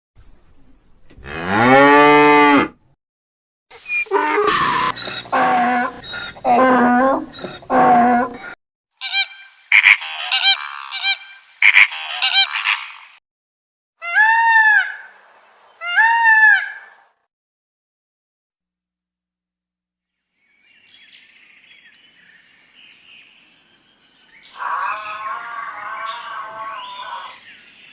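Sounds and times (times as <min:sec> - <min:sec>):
drawn-out low animal calls: 0:04.1 - 0:08.5, 0:24.5 - 0:27.4.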